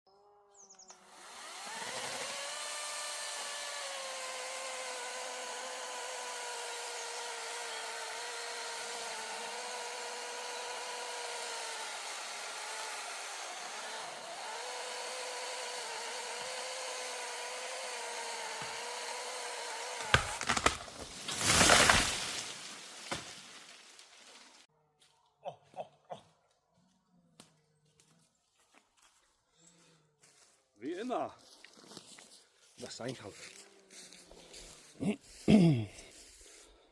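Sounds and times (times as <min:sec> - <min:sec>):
cordless chainsaw whining: 0:00.1 - 0:23.7.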